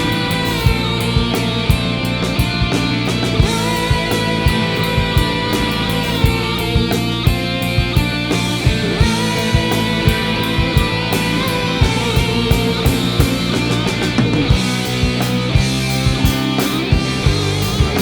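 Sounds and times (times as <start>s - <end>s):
rock music with guitar and bass: 0.0s - 18.0s
steady drum beat: 0.0s - 18.0s.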